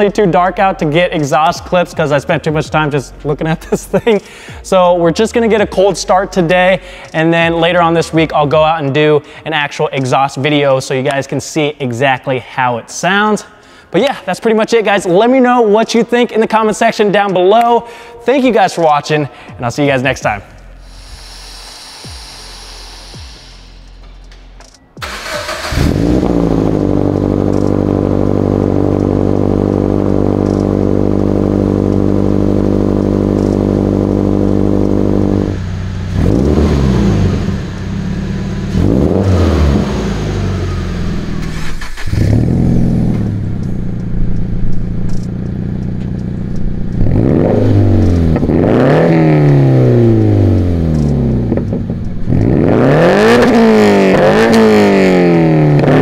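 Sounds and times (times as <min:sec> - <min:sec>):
car engine starting and revving: 0:20.4 - 0:56.0.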